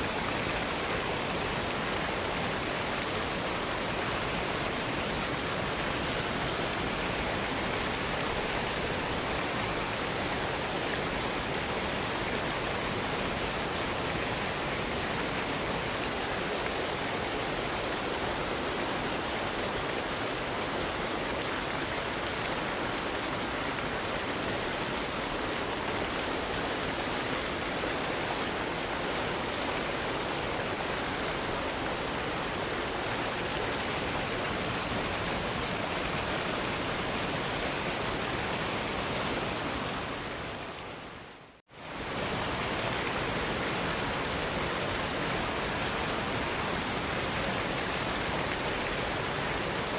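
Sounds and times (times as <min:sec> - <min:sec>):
waterfall rushing: 0:00.0 - 0:49.9.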